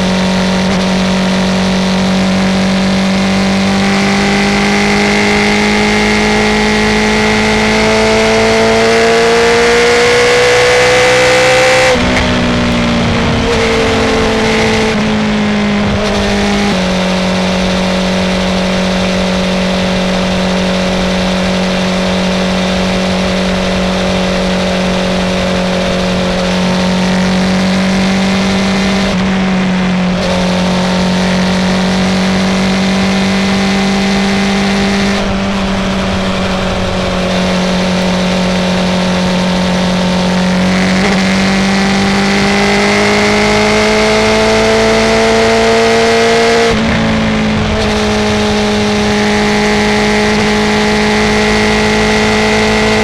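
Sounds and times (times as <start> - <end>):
motorcycle engine cruising: 0.0 - 53.0.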